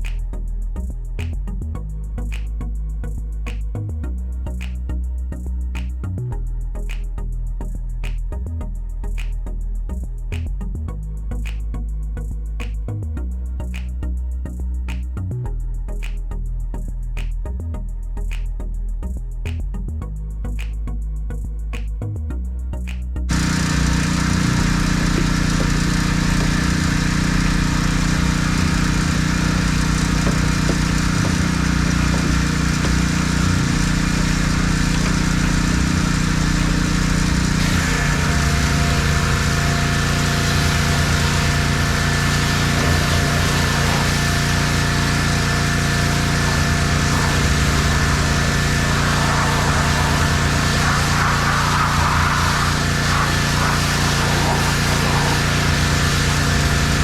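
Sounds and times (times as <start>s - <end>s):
engine running: 23.2s - 57.0s.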